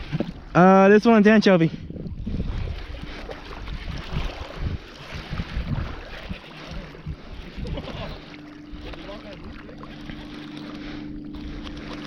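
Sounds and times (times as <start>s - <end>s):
wind buffeting microphone: 1.6s - 9.6s
faint steady hum: 6.6s - 12.0s.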